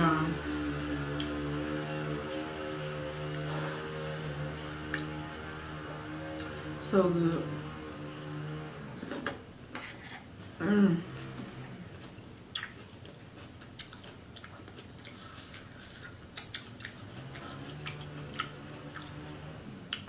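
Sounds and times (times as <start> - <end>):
person chewing food: 0.4 - 5.1, 10.1 - 19.3
wet mouth clicks and smacks: 13.8 - 17.0.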